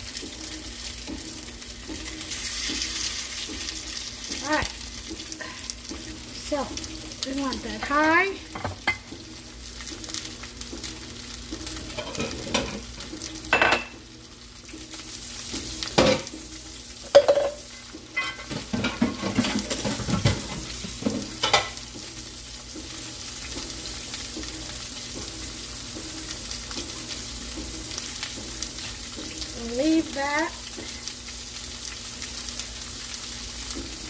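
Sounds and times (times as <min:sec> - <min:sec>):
meat sizzling in a pan: 0:00.0 - 0:34.0
knocks against a pan: 0:08.5 - 0:09.2, 0:16.0 - 0:16.4, 0:18.2 - 0:21.8.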